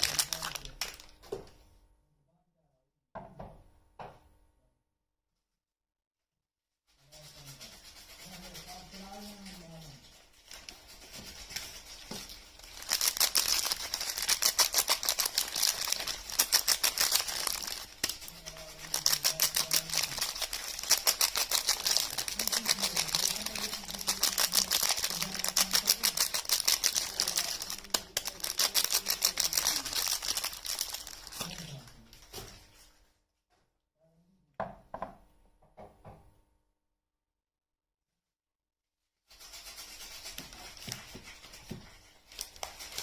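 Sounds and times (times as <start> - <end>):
soap wrapping crinkling: 0.0 - 1.2, 10.4 - 32.8, 39.7 - 43.0.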